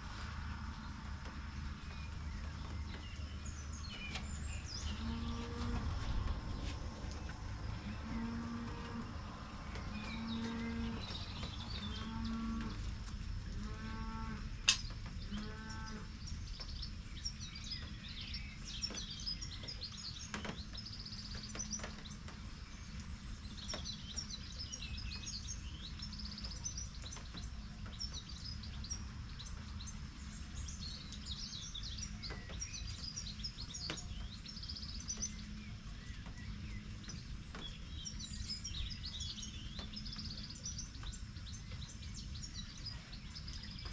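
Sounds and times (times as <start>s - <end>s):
steady low rumble: 0.0s - 13.7s
birds chirping: 0.2s - 43.9s.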